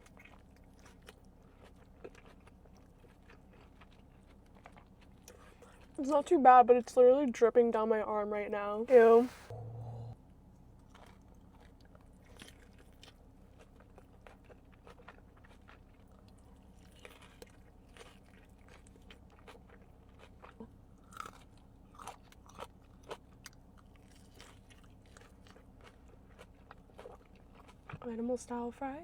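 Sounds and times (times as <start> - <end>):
person chewing: 0.0 - 6.0, 10.9 - 28.0.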